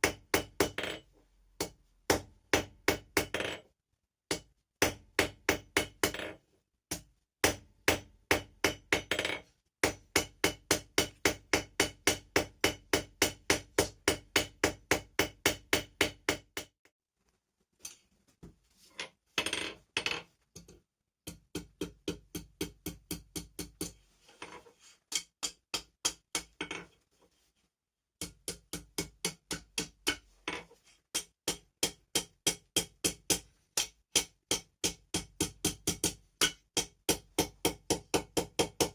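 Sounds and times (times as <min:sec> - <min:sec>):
hammer striking steel on anvil: 0:31.2 - 0:38.9.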